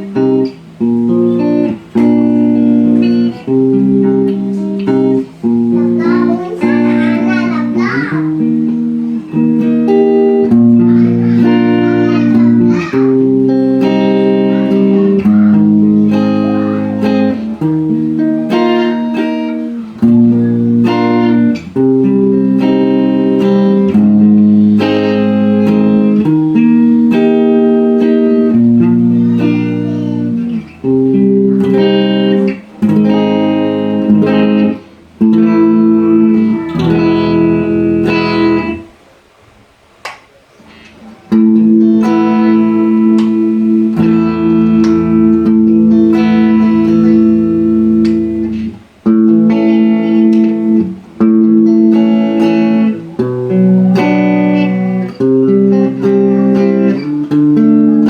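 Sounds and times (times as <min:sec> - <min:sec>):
electric guitar chords: 0:00.0 - 0:39.1, 0:40.6 - 0:58.0.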